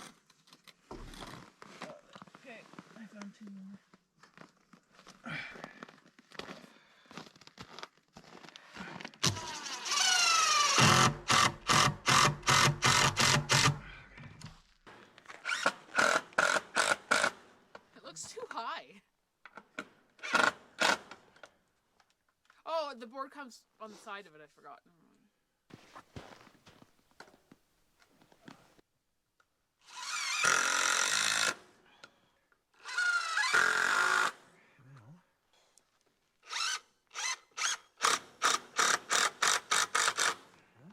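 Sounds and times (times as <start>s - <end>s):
cordless drill driving screws: 9.2s - 13.8s, 15.4s - 17.4s, 20.2s - 21.2s, 29.8s - 31.6s, 32.8s - 34.4s, 36.4s - 40.4s.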